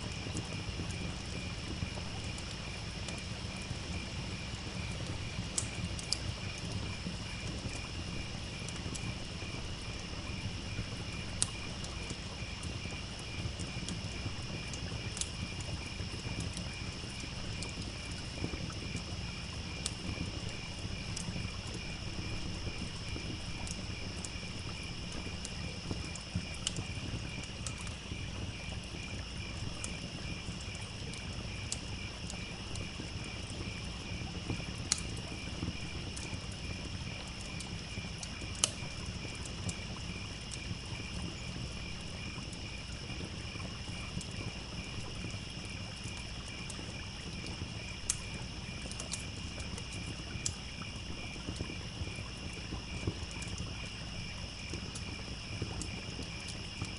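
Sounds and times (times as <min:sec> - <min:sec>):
campfire crackling: 0:00.0 - 0:56.9
crickets chirping: 0:00.0 - 0:56.9.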